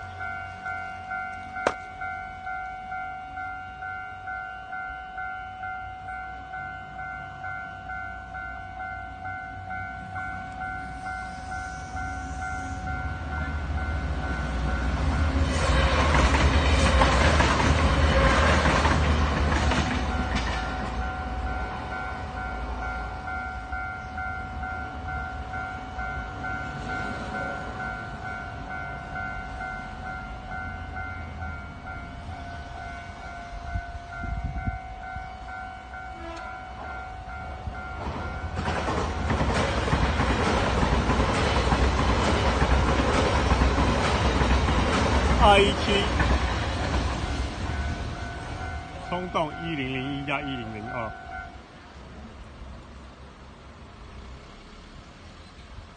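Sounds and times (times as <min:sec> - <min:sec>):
electronic crossing warning bell: 0:00.0 - 0:16.0, 0:19.9 - 0:40.3, 0:45.4 - 0:46.2, 0:47.2 - 0:51.7
train passing: 0:00.0 - 0:55.9.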